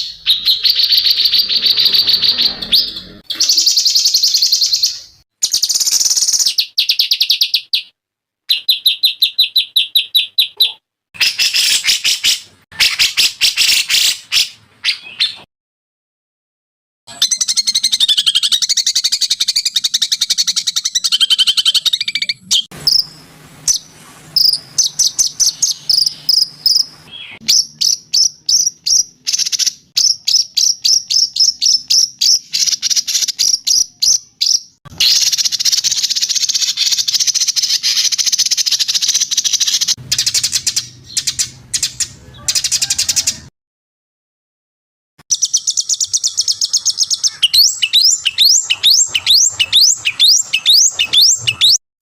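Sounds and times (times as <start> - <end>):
songbird trilling: 0.0 - 7.9, 17.1 - 43.4, 45.3 - 51.8
sharp high bird chirps: 0.0 - 15.5, 17.1 - 43.4, 45.3 - 51.8.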